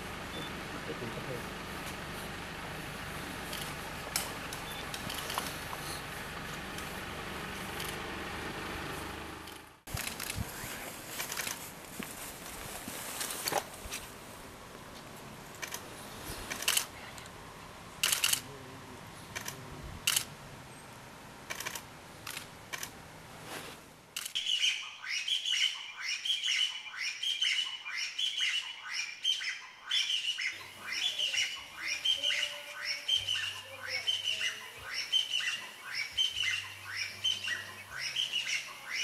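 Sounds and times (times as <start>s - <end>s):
sharp clicks: 3.5s - 5.5s, 15.6s - 15.8s, 16.5s - 17.3s, 18.0s - 18.5s, 19.3s - 20.3s, 21.5s - 23.0s, 24.2s - 24.4s
partridge calling: 24.4s - 39.0s.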